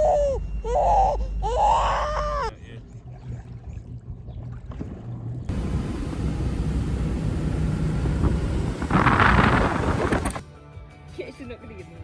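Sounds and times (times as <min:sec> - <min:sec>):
motorboat engine humming: 0:04.6 - 0:10.4
rushing wind and water: 0:07.4 - 0:10.4.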